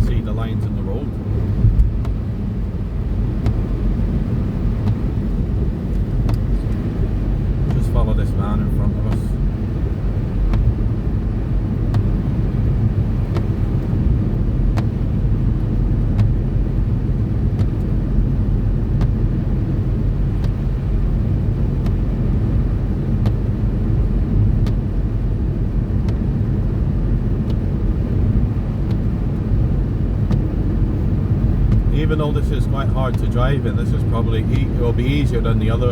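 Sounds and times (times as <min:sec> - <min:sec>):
car road noise: 0:00.0 - 0:35.9.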